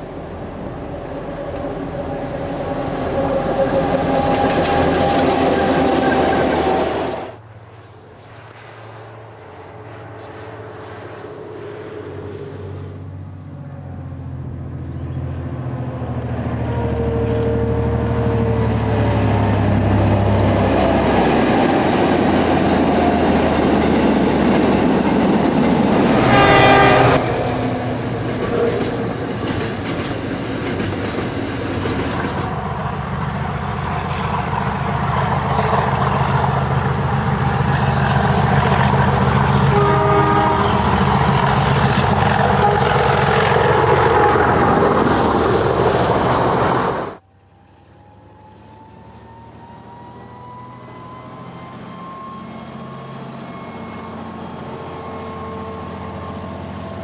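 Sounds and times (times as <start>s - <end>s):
train wheels clattering on rails: 1.4s - 7.4s, 18.7s - 26.4s, 27.1s - 32.6s
train horn blast: 1.6s - 7.4s, 25.9s - 29.3s, 39.4s - 44.9s.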